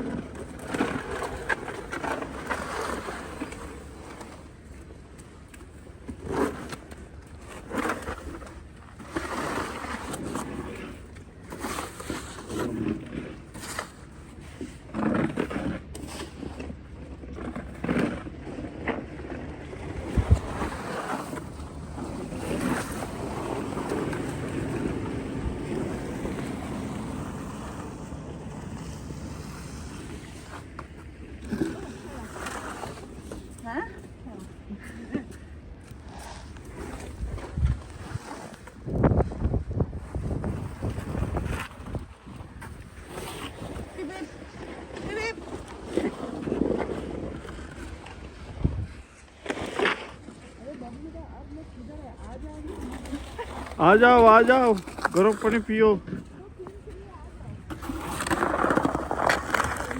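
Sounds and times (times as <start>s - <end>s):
snow shovels scraping snow: 11.5s - 16.7s, 20.0s - 30.8s, 36.0s - 37.2s, 37.9s - 38.7s, 42.9s - 47.8s, 57.0s - 59.9s.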